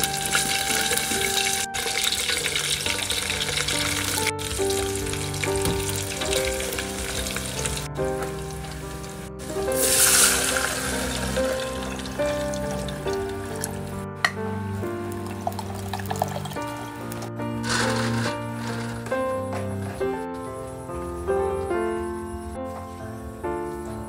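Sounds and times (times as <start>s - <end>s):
oil sizzling in a pot: 0.0s - 13.8s, 15.3s - 18.9s
background music: 0.0s - 24.0s
liquid hissing in hot pot: 9.4s - 12.9s, 17.6s - 18.8s.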